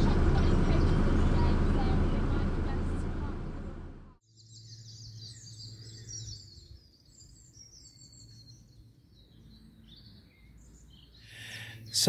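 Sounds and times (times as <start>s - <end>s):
small birds twittering: 4.2s - 12.0s.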